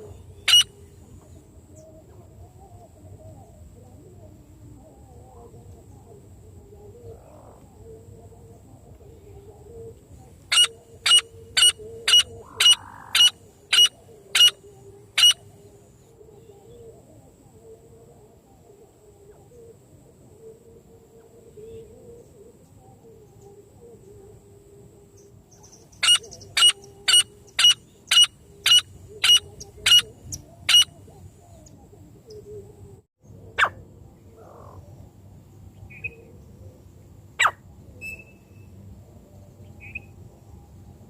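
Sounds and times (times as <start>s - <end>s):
francolin sharp calls: 0.0s - 0.8s, 10.5s - 15.5s, 25.6s - 31.0s
faint steady hum: 0.0s - 41.0s.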